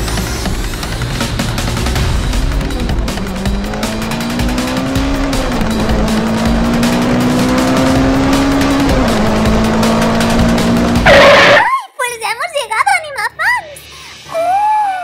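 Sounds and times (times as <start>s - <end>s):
race car engine: 0.0s - 11.6s
background music: 0.0s - 15.0s.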